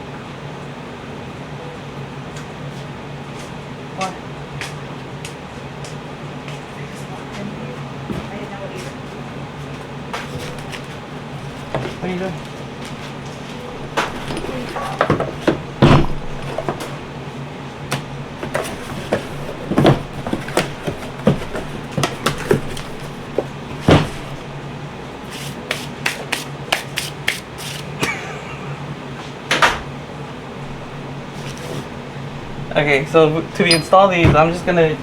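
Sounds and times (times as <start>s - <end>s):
steady low hum: 2.9s - 35.0s
engine parts and tools clinking on workbench: 10.4s - 17.1s, 30.7s - 35.0s.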